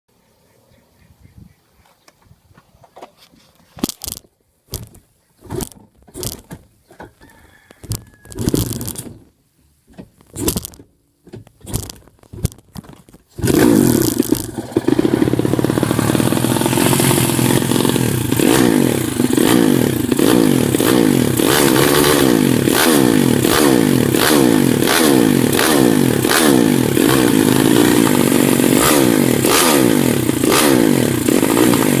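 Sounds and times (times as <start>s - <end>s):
motorcycle engine revving: 3.8s - 6.6s, 8.0s - 9.2s, 10.3s - 10.9s, 11.6s - 32.0s.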